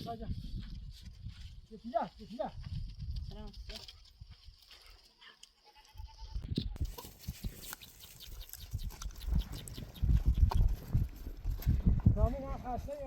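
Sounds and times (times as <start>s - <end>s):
goat bleating: 5.6s - 6.5s.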